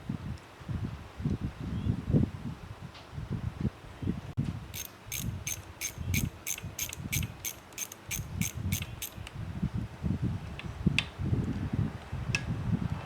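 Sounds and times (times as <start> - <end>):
small mechanism clicking: 4.7 - 9.4.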